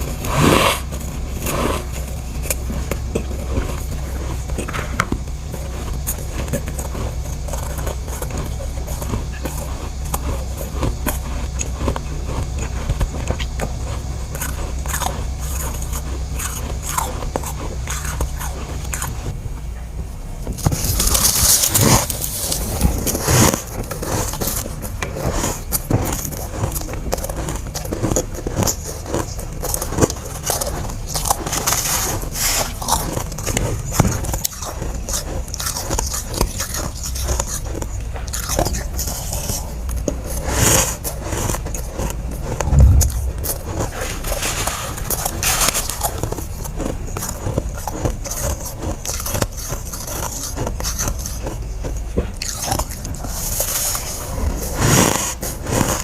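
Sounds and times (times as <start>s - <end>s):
person crunching frost: 0.0s - 19.3s, 20.7s - 56.0s
low hum: 42.2s - 45.4s.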